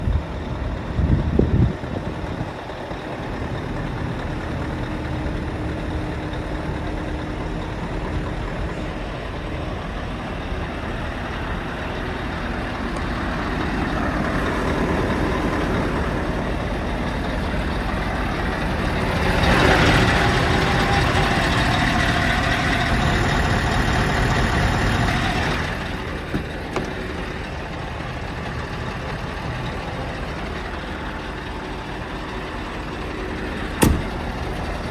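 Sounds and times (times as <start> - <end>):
diesel engine running: 0.0 - 34.9
loud knocks: 33.8 - 34.5.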